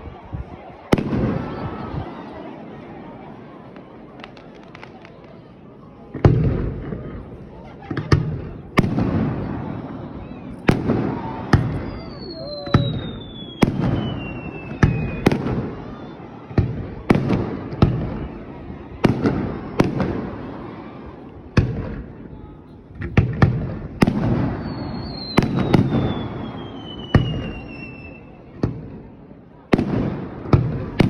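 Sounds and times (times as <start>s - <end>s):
fireworks bangs: 0.0s - 31.0s
falling firework whistle: 8.8s - 18.4s, 24.0s - 28.5s.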